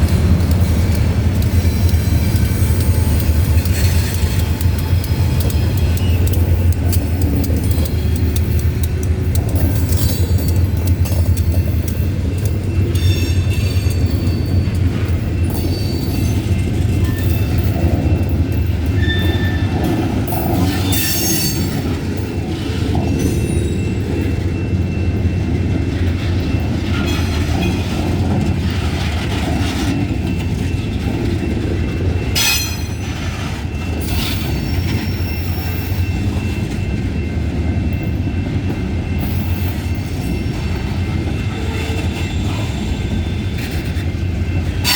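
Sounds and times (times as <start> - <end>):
freight train rumbling: 0.0 - 44.9
wheel squeal: 18.9 - 21.8.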